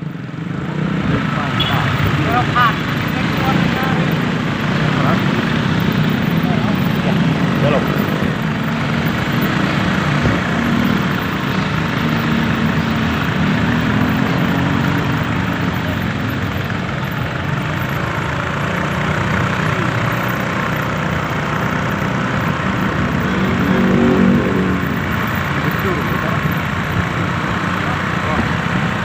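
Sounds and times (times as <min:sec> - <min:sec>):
road and traffic noise: 0:00.0 - 0:29.0
vehicle engine running: 0:00.0 - 0:29.0.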